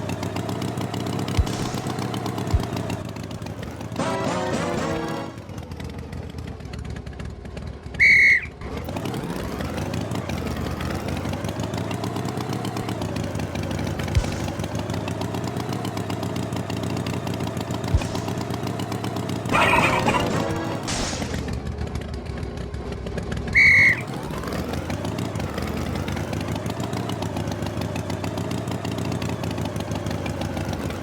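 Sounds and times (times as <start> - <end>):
cartoon tractor engine: 0.0 - 31.0
high-pitched toot: 19.5 - 20.8, 23.6 - 24.1.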